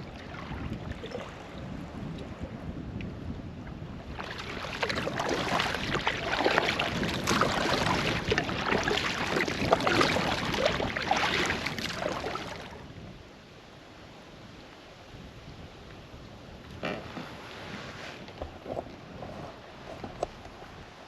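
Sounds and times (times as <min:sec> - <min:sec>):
water splashing around paddled canoe: 0:00.0 - 0:12.8.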